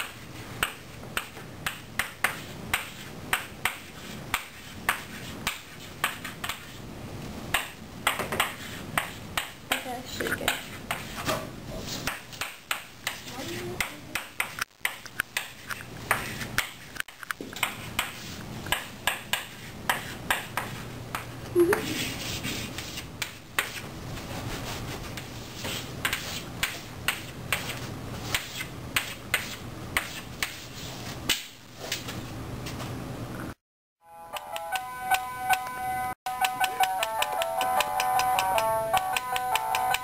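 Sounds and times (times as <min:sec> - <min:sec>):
chalk clicking on chalkboard: 0:25.2 - 0:30.6.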